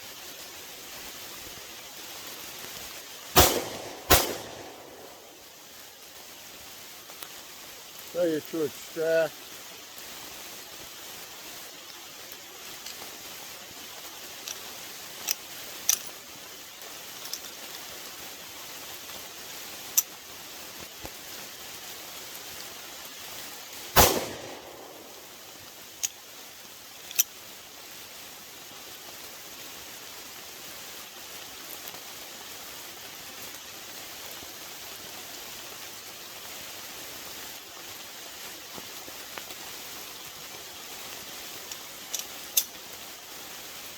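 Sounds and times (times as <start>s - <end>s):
steady hiss: 0.0s - 43.9s
loud gunshot with echo: 3.4s - 5.2s, 24.0s - 25.2s.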